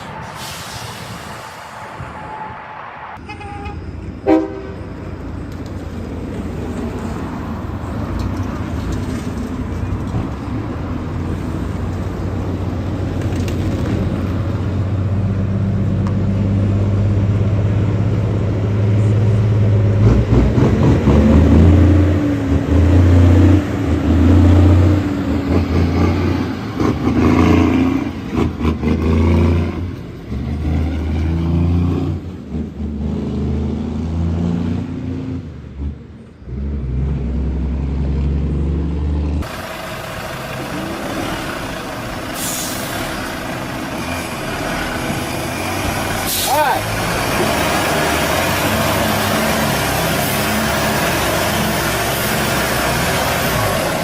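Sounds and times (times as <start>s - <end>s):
vehicle engine revving: 19.0s - 35.9s, 42.9s - 54.0s.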